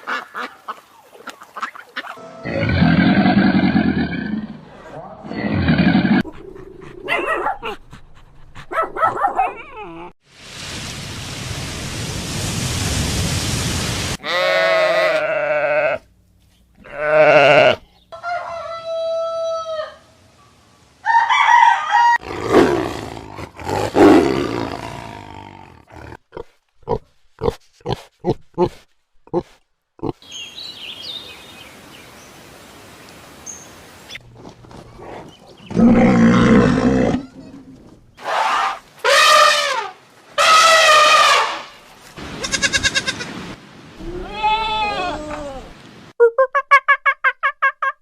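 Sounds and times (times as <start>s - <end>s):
hiss-like noise: 10.3s - 14.2s.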